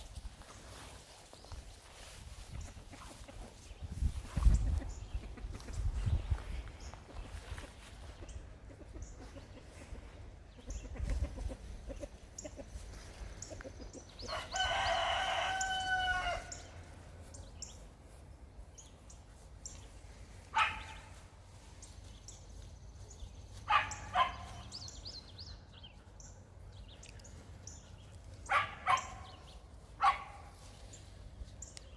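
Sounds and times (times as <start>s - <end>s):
chickens clucking: 1.9s - 14.4s
rooster crowing: 14.3s - 16.6s.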